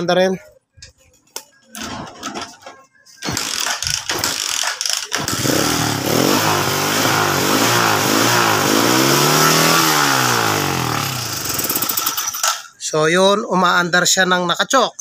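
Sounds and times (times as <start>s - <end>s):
motorcycle engine starting and revving: 5.1s - 12.5s.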